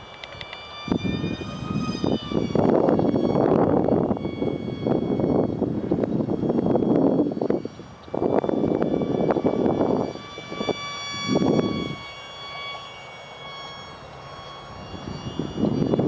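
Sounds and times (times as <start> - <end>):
high-pitched motor whine: 0.0 - 16.0.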